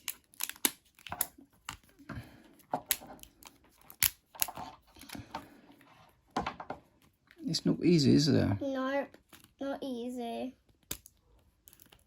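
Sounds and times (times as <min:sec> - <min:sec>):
scissors snipping packaging: 0:00.0 - 0:01.8.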